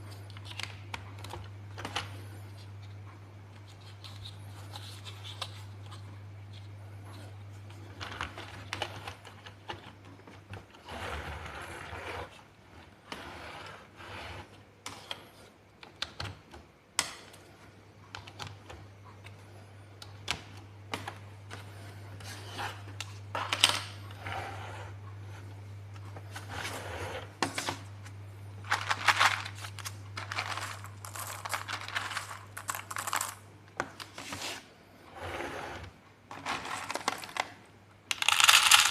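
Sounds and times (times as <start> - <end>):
steady low hum: 0.0 - 38.9
plastic blocks clicking: 28.7 - 34.1, 36.3 - 38.9.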